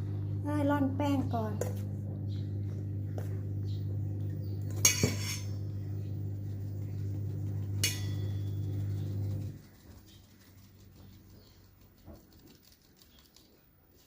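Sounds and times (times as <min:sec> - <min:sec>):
steady low hum: 0:00.0 - 0:12.5
metal kitchenware clinking: 0:04.8 - 0:05.6, 0:07.8 - 0:08.6.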